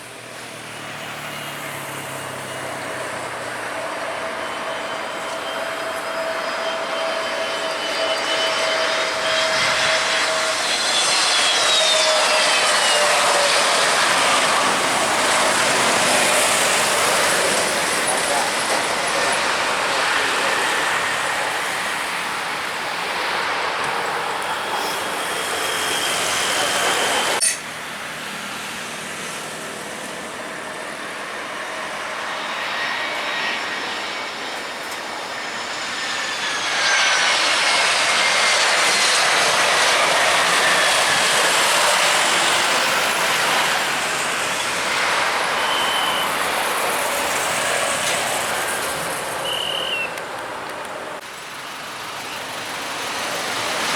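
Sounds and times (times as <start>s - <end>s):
high turbine whine: 0.0s - 53.9s
jet engines roaring: 0.0s - 53.9s.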